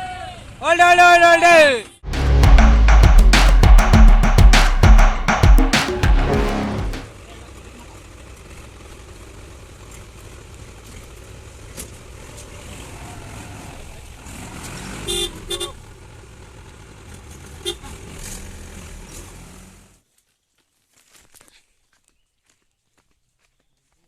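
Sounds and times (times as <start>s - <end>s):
horn toots: 2.0s - 7.1s.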